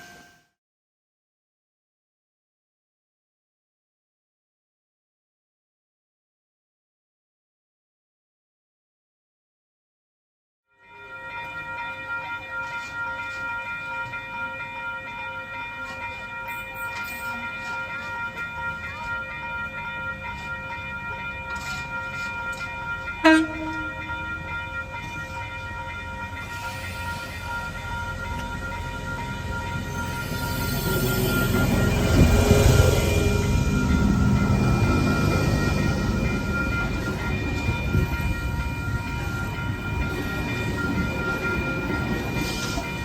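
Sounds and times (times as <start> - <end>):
train running: 11.0 - 43.0.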